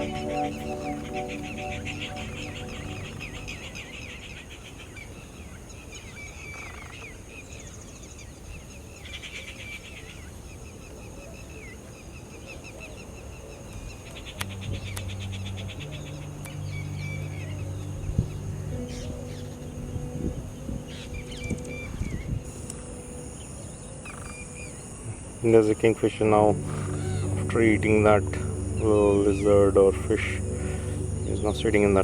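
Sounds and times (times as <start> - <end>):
birds chattering trills: 0.0 - 4.5, 13.9 - 32.0
faint background music: 0.0 - 4.6, 13.7 - 32.0.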